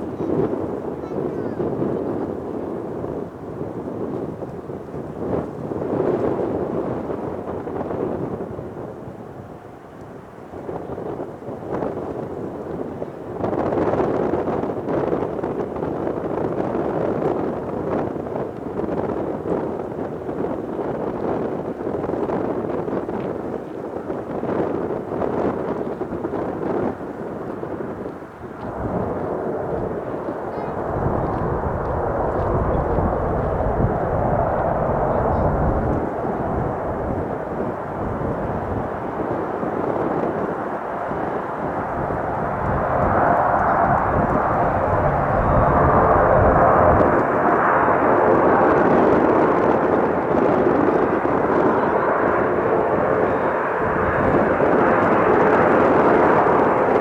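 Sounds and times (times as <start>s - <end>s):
turboprop aircraft engines: 0.0s - 57.0s
wind buffeting microphone: 0.0s - 57.0s.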